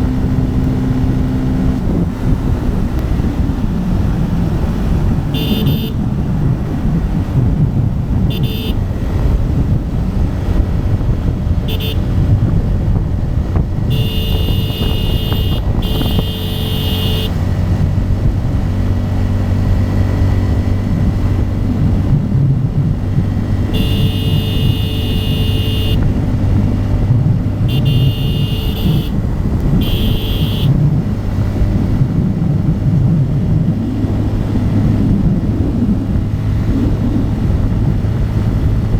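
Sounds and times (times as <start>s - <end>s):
motorcycle engine running: 0.0s - 38.9s
vehicle horns blasting: 5.2s - 6.2s, 8.2s - 8.9s, 11.6s - 12.5s, 13.8s - 17.4s, 23.7s - 26.2s, 27.6s - 30.8s.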